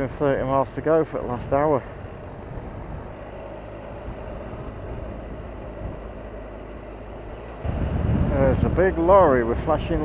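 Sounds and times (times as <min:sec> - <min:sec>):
road noise: 0:00.0 - 0:10.0
wind noise: 0:01.3 - 0:06.3, 0:07.3 - 0:10.0
motorcycle engine cruising: 0:01.5 - 0:10.0.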